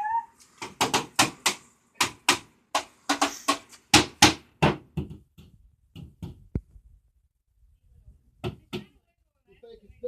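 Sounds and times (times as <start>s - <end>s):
hammer striking television set: 0.6s - 6.4s.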